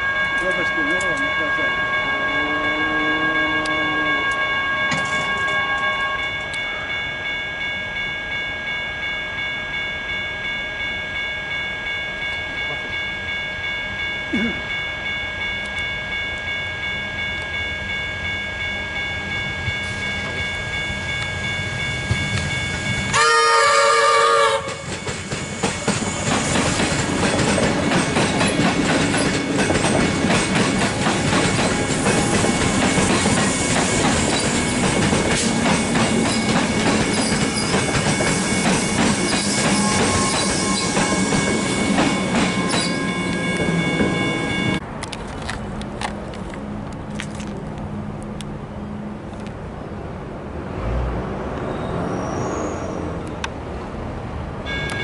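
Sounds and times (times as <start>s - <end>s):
train horn: 0.0s - 6.5s, 23.1s - 25.0s, 39.5s - 41.8s
electric train whine: 0.0s - 50.0s
train wheels clattering on tracks: 24.4s - 46.5s.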